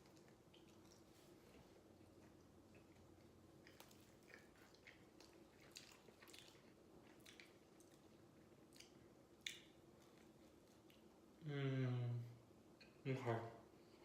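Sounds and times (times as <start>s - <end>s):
person chewing: 0.0s - 11.2s
low room hum: 0.0s - 14.0s.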